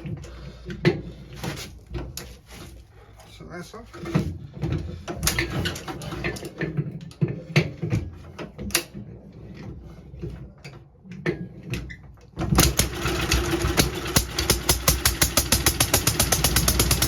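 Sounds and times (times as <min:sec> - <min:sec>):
knocks and clatter of handling: 0:00.0 - 0:03.2, 0:03.8 - 0:15.1
engine starting and running: 0:11.4 - 0:17.0.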